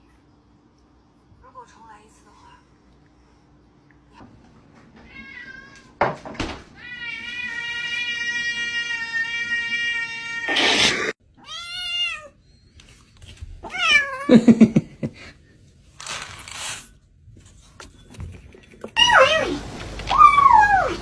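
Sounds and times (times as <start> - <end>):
cat meowing: 19.0 - 21.0.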